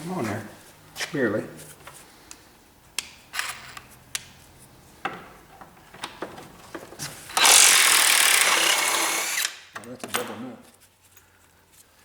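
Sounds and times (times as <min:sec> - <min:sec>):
power tool running: 0:07.3 - 0:09.6.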